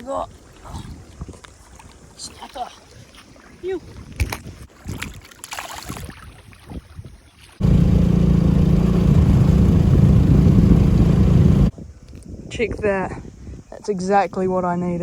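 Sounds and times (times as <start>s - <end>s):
outboard motor running: 7.6s - 11.7s.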